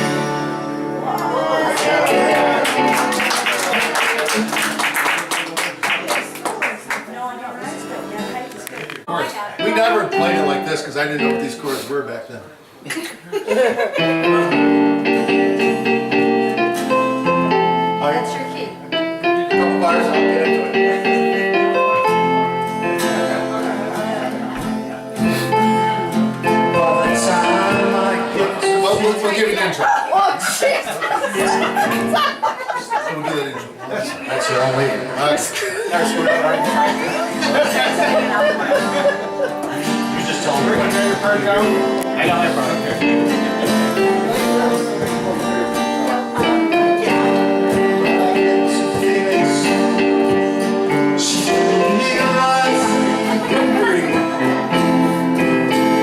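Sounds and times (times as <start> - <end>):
guitar strums: 0.0 - 3.2, 7.6 - 11.9, 14.0 - 29.8, 31.3 - 32.4, 35.9 - 56.0
live band playing: 0.0 - 3.7, 7.5 - 12.0, 14.0 - 29.8, 30.8 - 32.5, 35.9 - 56.0
keyboard chords: 0.0 - 4.5, 9.6 - 11.7, 13.7 - 29.8, 31.1 - 32.5, 35.1 - 56.0.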